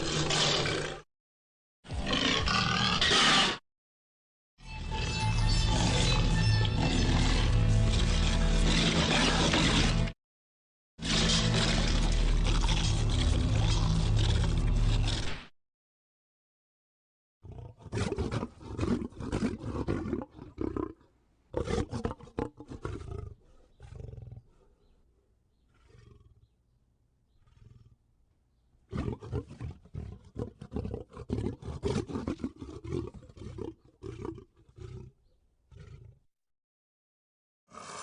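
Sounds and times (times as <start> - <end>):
lion roaring: 5.7 - 10.2, 11.0 - 15.3, 17.4 - 24.7, 25.7 - 26.5, 27.3 - 28.0, 28.9 - 36.2.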